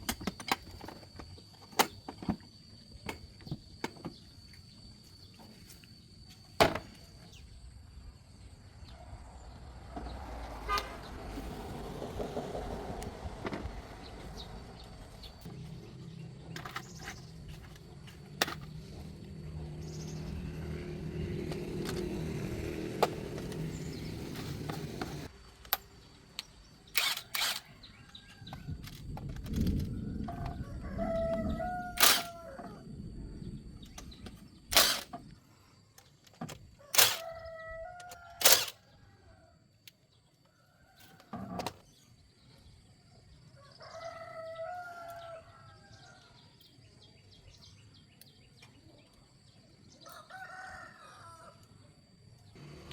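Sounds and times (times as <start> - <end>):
rooster crowing: 30.0 - 32.9, 36.8 - 39.6, 43.6 - 46.4, 50.0 - 51.7.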